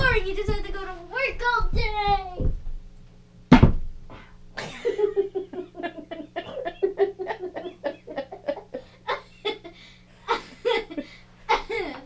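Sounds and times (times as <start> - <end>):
girl making wordless sounds: 0.0 - 2.6
low steady hum: 0.0 - 12.0.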